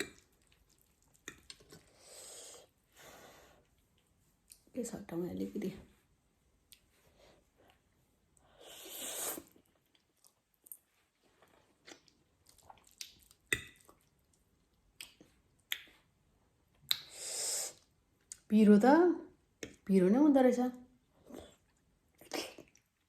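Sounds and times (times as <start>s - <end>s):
chewing with small clicks: 0.0s - 2.0s, 9.6s - 16.1s
person slurping noodles: 8.6s - 9.6s.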